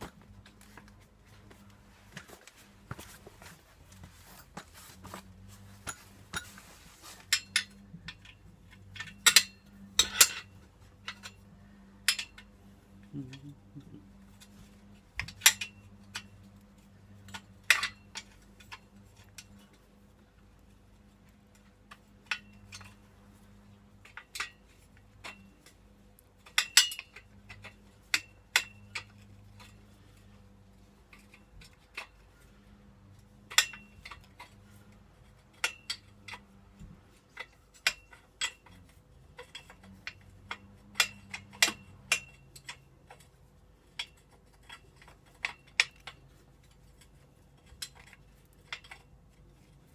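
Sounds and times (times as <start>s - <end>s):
faint low hum: 0.0s - 49.9s
metal tools clinking: 5.8s - 12.5s.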